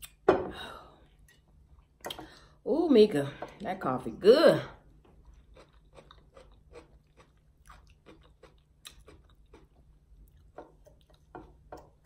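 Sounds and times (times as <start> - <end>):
close-up chewing: 5.1 - 12.0.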